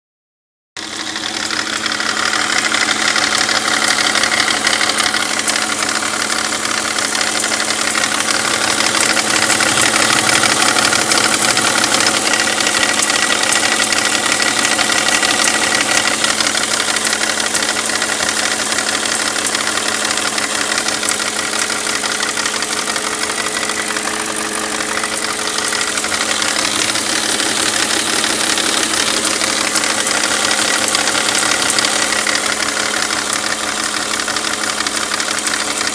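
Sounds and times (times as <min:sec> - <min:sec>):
car engine idling: 0:00.8 - 0:35.9
fast ticking engine knock: 0:00.8 - 0:35.9.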